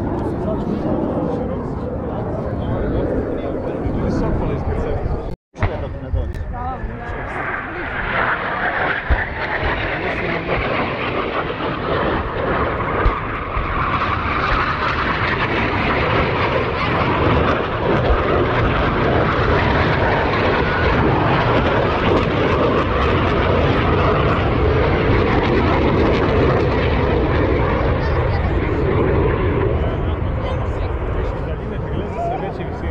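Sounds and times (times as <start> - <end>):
military aircraft engine: 0.0 - 32.9.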